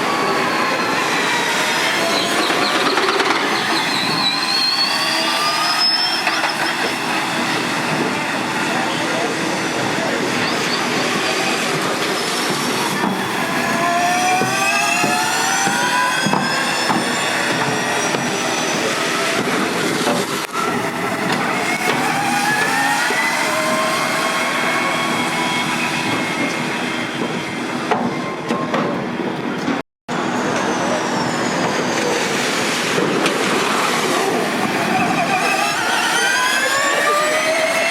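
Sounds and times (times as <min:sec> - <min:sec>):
electric race cars whining: 0:00.0 - 0:28.0, 0:32.0 - 0:37.9
road and tyre noise: 0:00.0 - 0:37.9.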